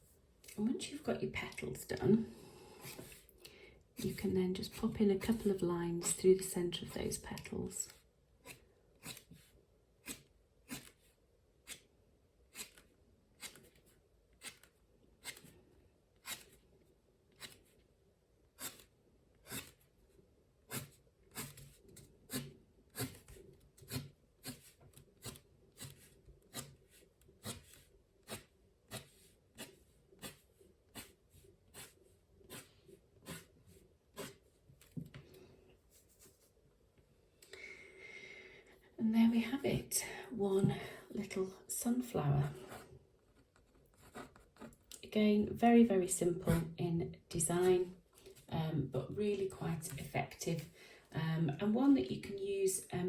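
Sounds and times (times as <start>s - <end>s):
drawing tool strokes on paper: 20.7s - 34.4s.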